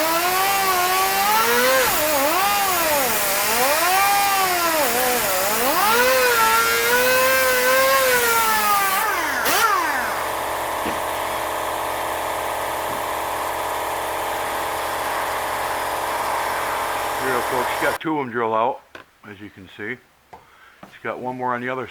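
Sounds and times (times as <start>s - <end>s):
electric drill drilling: 0.0s - 18.0s
steady motor hum: 0.0s - 18.0s.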